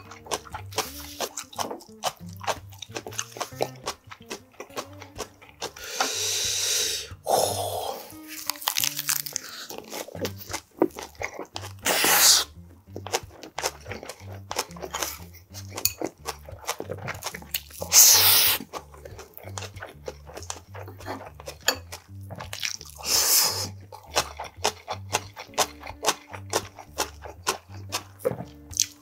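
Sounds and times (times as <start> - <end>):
chewing crunchy leaves: 0.0 - 29.0.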